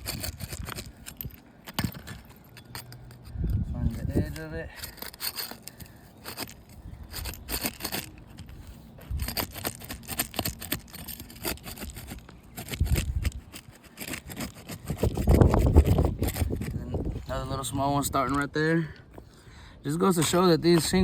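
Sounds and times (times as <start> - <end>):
scraper prying roof shingles: 0.0 - 2.4, 4.7 - 16.9.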